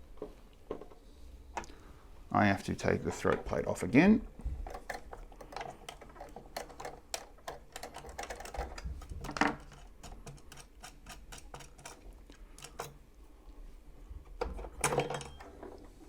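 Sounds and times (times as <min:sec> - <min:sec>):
screwdriver clicking on screws: 0:04.9 - 0:13.0.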